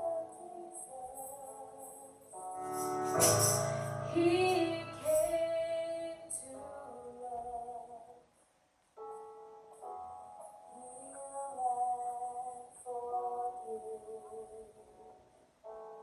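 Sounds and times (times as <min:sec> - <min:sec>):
woman singing: 0:00.0 - 0:02.2, 0:04.1 - 0:08.2, 0:10.7 - 0:15.1.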